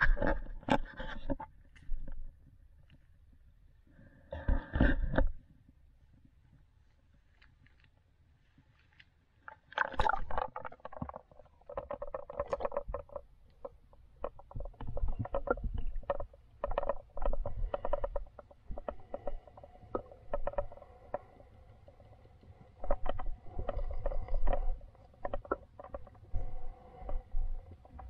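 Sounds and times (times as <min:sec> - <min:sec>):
muffled underwater river water: 0:00.0 - 0:28.0
irregular clicks and knocks: 0:09.8 - 0:21.4.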